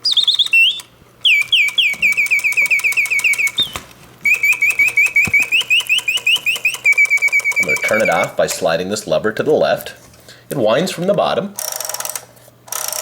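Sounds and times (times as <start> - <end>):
mechanical singing bird trills: 0.0 - 8.6.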